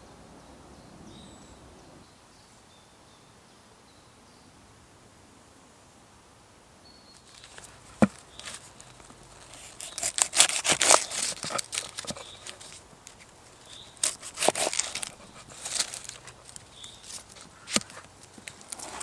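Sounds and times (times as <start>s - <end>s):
twigs snapping and crunching: 7.2s - 19.0s.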